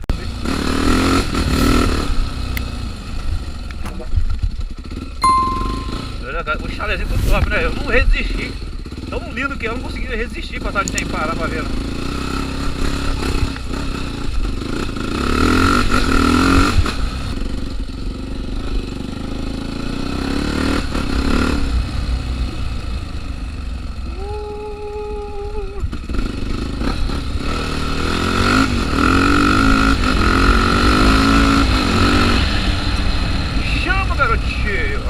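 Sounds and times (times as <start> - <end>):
motorcycle engine revving: 0.1 - 5.2, 6.3 - 35.0
steady tone: 5.2 - 6.2.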